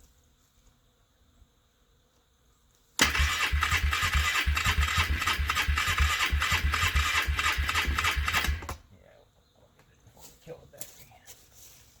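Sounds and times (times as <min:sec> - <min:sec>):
small petrol engine starting: 0:03.0 - 0:08.8.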